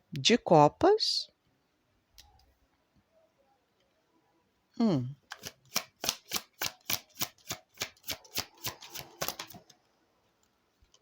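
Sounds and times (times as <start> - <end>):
cards being shuffled: 5.3 - 9.7.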